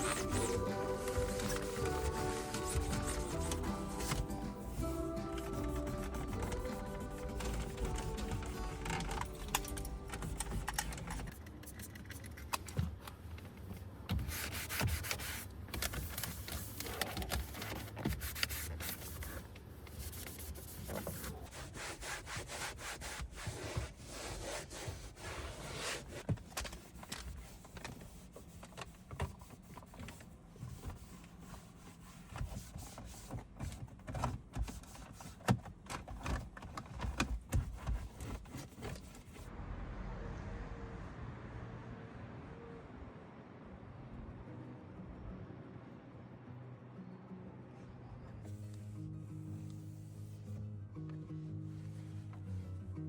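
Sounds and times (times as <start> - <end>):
hand rubbing a surface: 0.0 - 9.3, 17.8 - 26.2.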